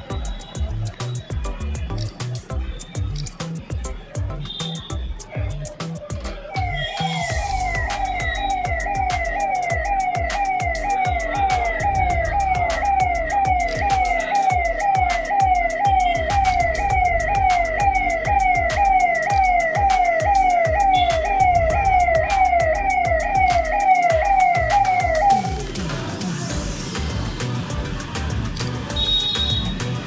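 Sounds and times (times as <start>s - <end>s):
electronic siren sweeping: 6.6s - 26.7s.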